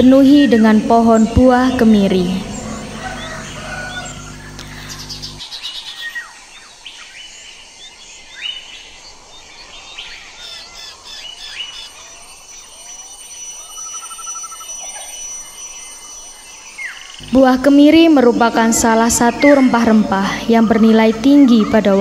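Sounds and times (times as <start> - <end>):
bird trill: 0.0 - 6.3, 8.4 - 22.0
birds chirping and calling: 0.0 - 7.2, 7.8 - 22.0.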